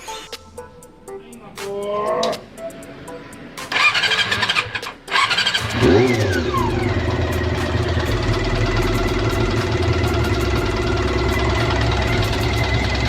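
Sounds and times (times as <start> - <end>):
electric starter cranking: 3.7 - 13.0
motorcycle engine revving and idling: 3.7 - 13.0.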